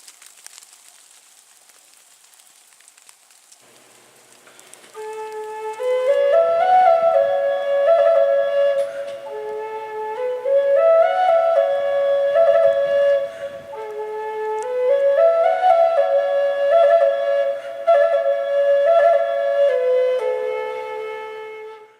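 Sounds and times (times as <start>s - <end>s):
solo flute slow melody: 4.8s - 21.9s.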